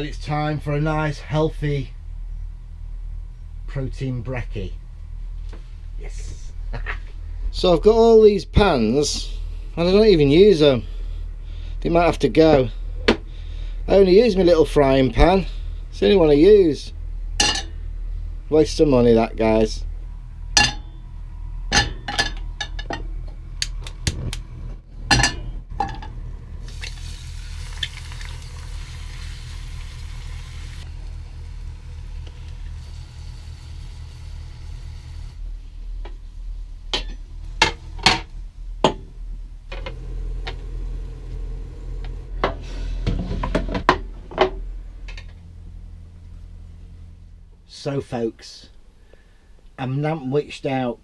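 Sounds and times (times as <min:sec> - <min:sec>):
low steady hum: 0:00.0 - 0:51.0
steady hissing: 0:26.6 - 0:49.8.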